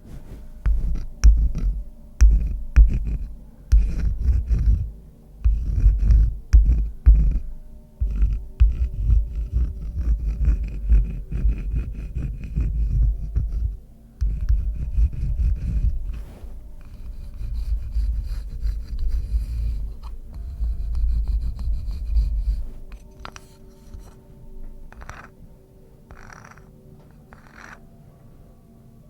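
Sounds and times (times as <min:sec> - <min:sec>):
scratching on wood: 0:00.0 - 0:25.4, 0:26.1 - 0:27.9.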